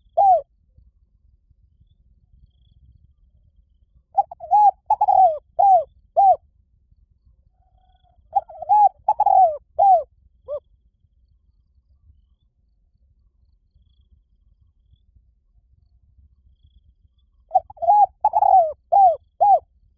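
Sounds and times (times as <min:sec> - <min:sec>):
dove cooing: 0:00.0 - 0:00.4, 0:04.2 - 0:06.4, 0:07.9 - 0:10.6, 0:17.5 - 0:19.6.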